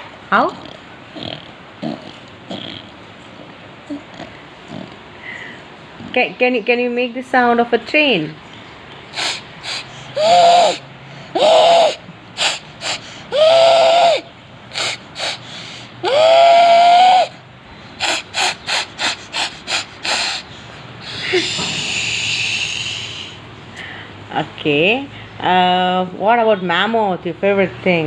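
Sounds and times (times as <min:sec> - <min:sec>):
vocal steam hiss: 0:09.1 - 0:17.4, 0:18.0 - 0:23.9
child making breathy chuffs: 0:09.1 - 0:24.1
child making whistle toots: 0:09.2 - 0:10.8, 0:11.4 - 0:15.4, 0:16.0 - 0:17.4.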